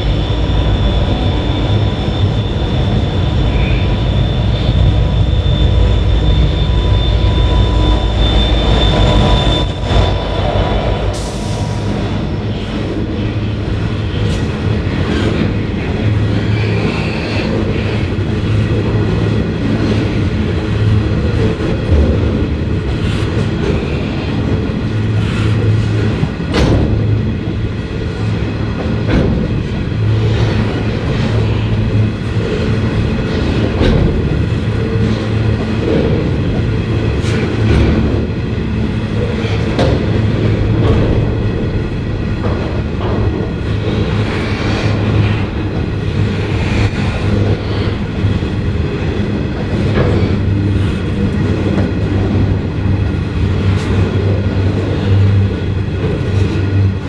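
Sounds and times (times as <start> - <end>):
train wheels rumbling on rails: 0.0 - 57.0
wheels clacking over rail joints: 11.8 - 57.0.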